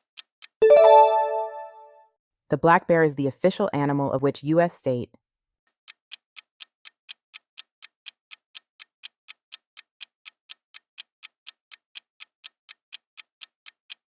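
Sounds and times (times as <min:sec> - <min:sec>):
clock ticking: 0:00.0 - 0:01.6, 0:05.9 - 0:14.0.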